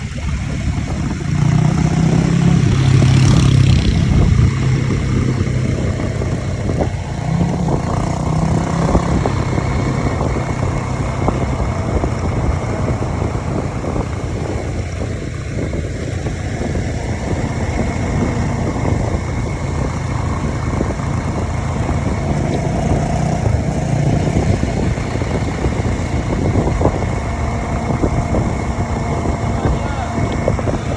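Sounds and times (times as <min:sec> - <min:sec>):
dirt bike engines revving: 0:00.0 - 0:30.9.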